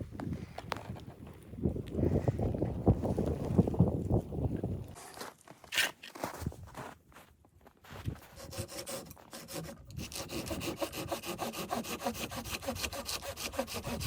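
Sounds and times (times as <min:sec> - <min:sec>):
hand saw cutting wood: 0:08.2 - 0:14.0.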